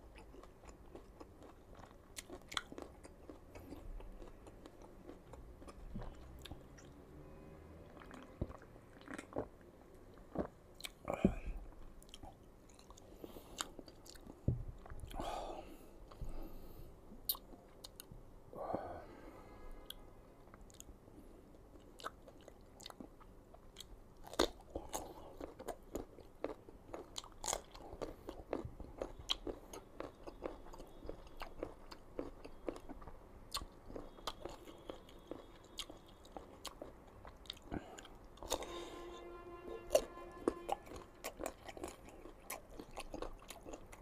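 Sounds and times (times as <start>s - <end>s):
crunchy bites and chewing: 21.9s - 38.7s.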